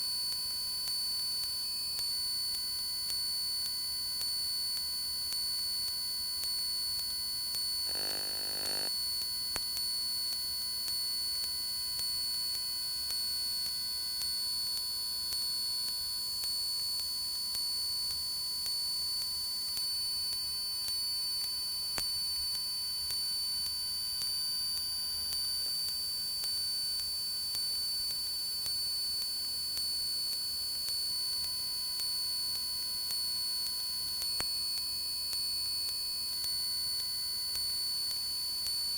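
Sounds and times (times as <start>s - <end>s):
electrical hum and whine: 7.7s - 8.9s
brief electrical buzz: 7.9s - 8.9s.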